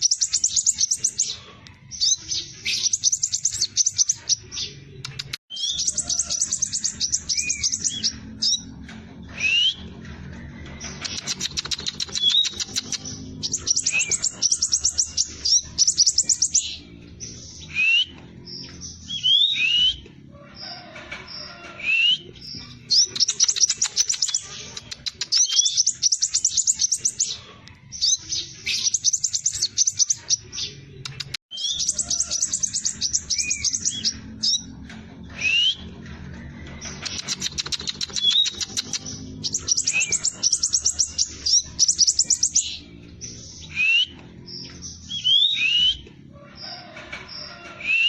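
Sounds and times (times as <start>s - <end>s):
bird singing rapid trills: 0.0s - 4.8s, 5.5s - 8.7s, 10.8s - 20.0s, 22.3s - 27.4s, 28.0s - 30.9s, 31.5s - 34.7s, 36.8s - 46.0s.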